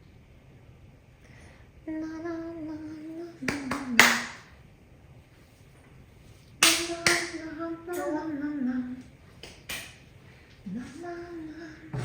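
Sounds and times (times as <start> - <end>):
hand claps: 3.4 - 4.5, 6.6 - 7.4, 9.4 - 10.0.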